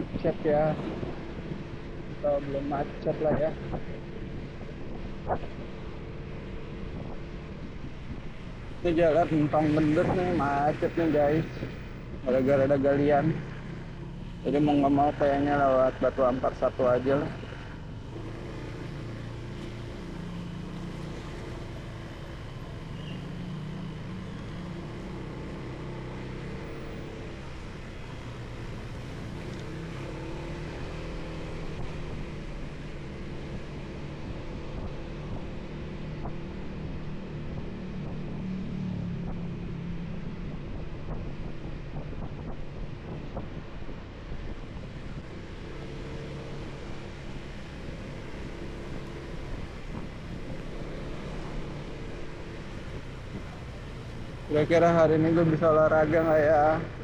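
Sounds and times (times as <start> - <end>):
motorcycle engine: 0.0 - 57.0
wind noise on microphone: 3.2 - 13.0, 31.7 - 45.6, 49.4 - 50.7.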